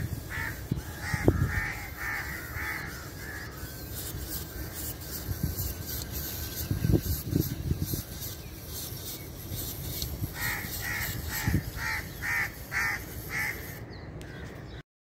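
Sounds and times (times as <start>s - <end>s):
bird calling: 10.3s - 14.8s.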